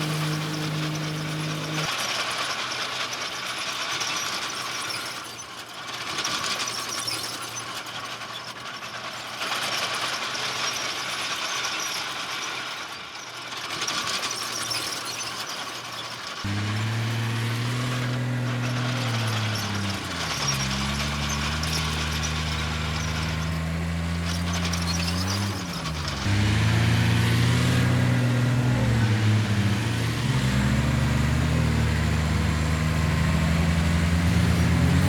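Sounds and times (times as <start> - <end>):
diesel engine: 0.0 - 3.3, 15.8 - 35.0
earthmoving machinery clattering: 16.5 - 35.0.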